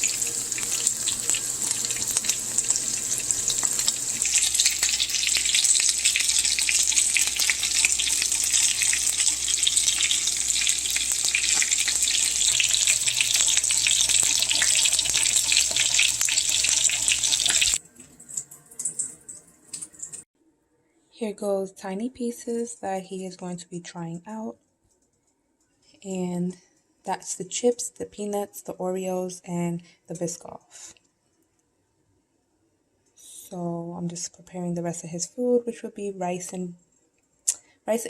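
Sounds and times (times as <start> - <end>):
chicken frying in hot oil: 0.0 - 20.2.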